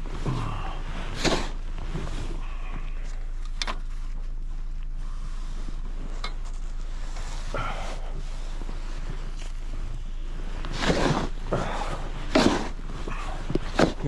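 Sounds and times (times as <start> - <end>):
sharp scrapes or knocks: 10.7 - 11.4, 12.3 - 12.8.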